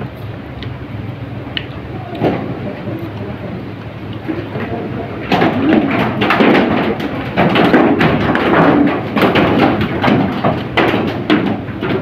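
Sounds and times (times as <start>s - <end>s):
chewing and mouth noises: 1.5s - 2.3s
clicks taps and knocks: 5.3s - 12.0s.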